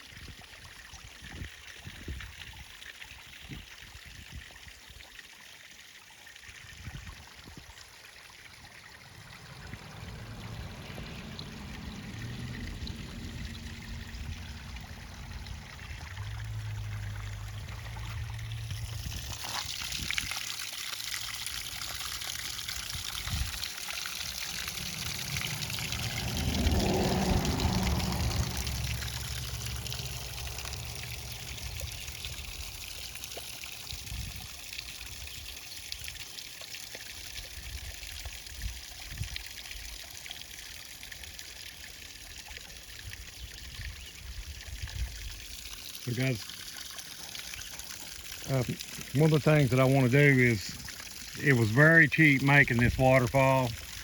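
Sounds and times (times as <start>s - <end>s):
water pouring down a waterfall: 0.0s - 54.0s
low rumble: 8.9s - 19.4s, 24.2s - 32.8s.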